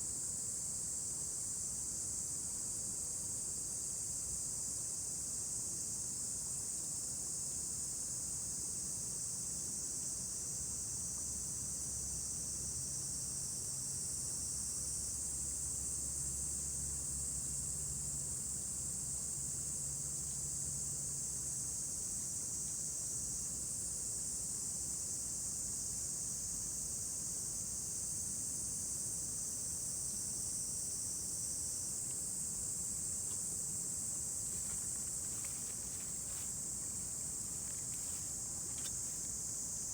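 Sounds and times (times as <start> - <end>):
insects chirring: 30.0 - 39.9.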